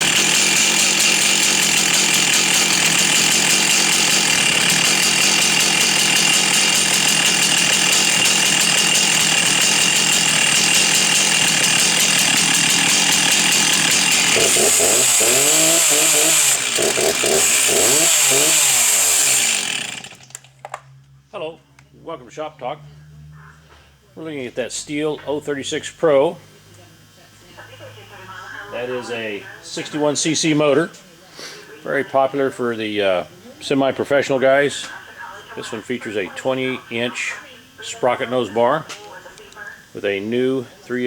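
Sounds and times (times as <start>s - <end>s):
chainsaw revving: 0.0s - 20.5s.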